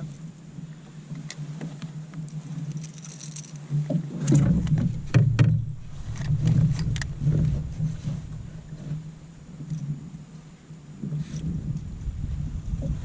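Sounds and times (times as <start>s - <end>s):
low rumble: 4.2s - 13.0s.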